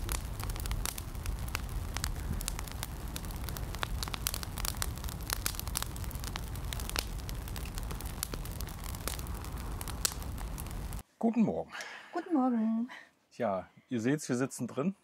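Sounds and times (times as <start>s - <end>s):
fire low rumble: 0.0s - 11.0s
wood crackling and popping: 0.0s - 11.0s.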